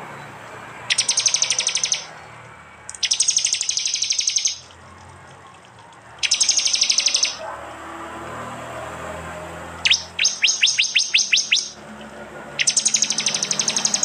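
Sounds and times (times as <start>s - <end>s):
bird high trills: 0.9s - 2.1s, 2.9s - 4.7s, 6.2s - 7.4s, 9.8s - 11.8s, 12.6s - 14.0s.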